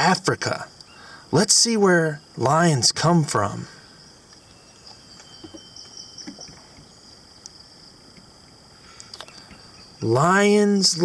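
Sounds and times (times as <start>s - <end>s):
high-pitched hiss: 0.0s - 11.0s.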